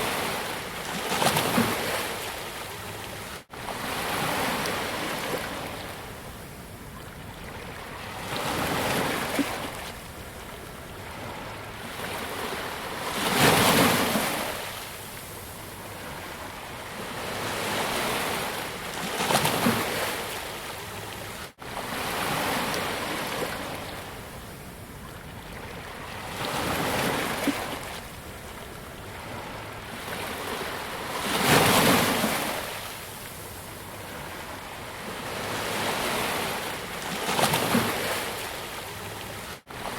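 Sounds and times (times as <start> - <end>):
sea waves breaking on beach: 11.1 - 24.9, 25.6 - 39.9.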